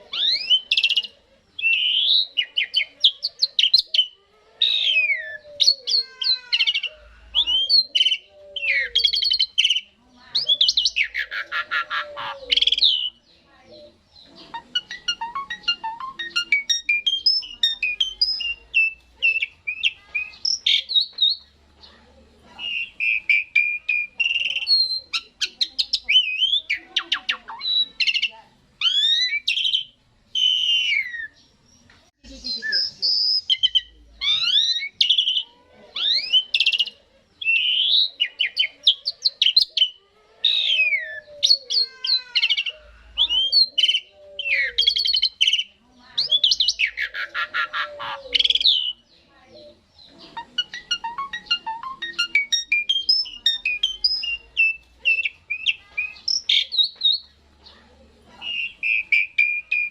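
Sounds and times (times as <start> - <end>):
starling song: 14.4 - 20.9.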